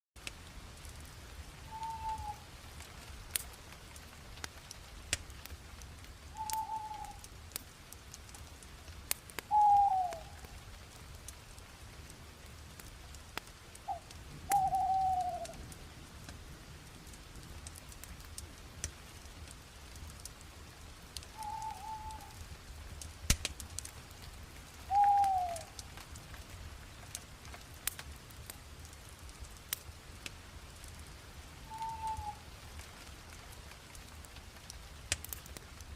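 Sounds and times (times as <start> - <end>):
wood fire crackling and popping: 0.2 - 35.9.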